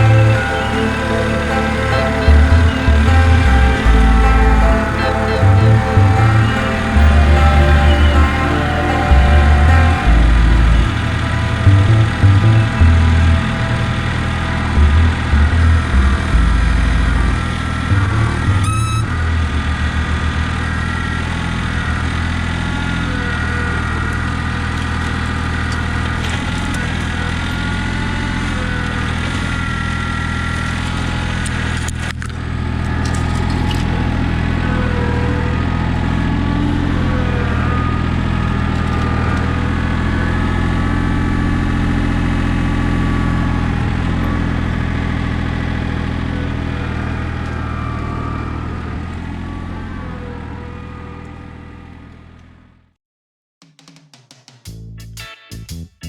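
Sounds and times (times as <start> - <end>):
high whine: 0.0 - 23.1
diesel tractor engine running: 0.0 - 52.6.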